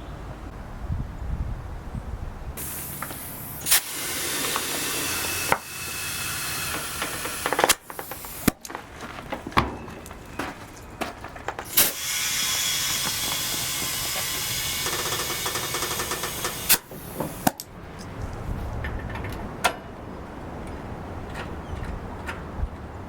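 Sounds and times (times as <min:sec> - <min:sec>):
compressed air hissing into tire: 0:02.6 - 0:08.7, 0:11.6 - 0:17.6
air chuck and hose clicks: 0:02.6 - 0:08.8, 0:11.6 - 0:18.4.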